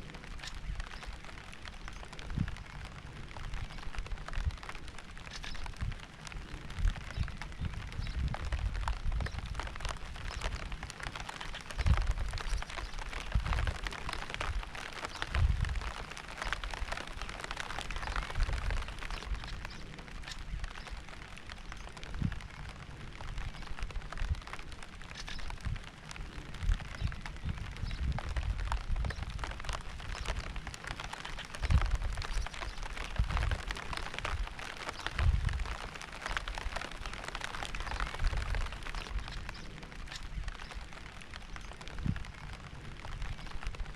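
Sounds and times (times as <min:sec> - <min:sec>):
rain pattering: 0:00.0 - 0:43.9.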